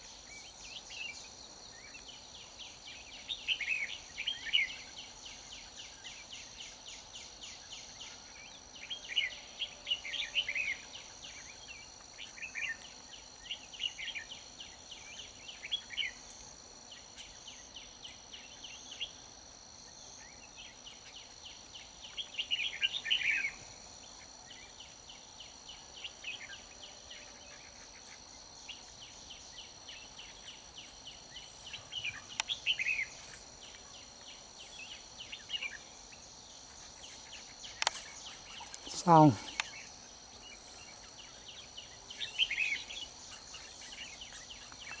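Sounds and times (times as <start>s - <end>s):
pulsing insect trill: 0.0s - 45.0s
bulbuls singing: 20.0s - 45.0s.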